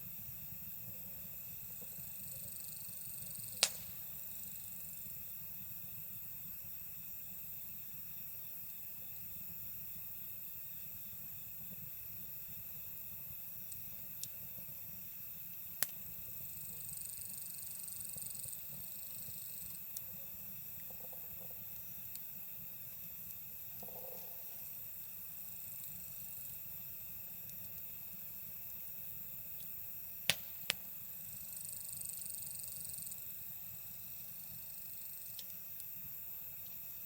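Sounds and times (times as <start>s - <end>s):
crickets chirring: 0.0s - 37.0s
wood fire crackling: 0.4s - 4.8s, 10.6s - 31.5s, 32.2s - 37.0s
fire popping: 0.6s - 4.5s, 11.6s - 31.5s.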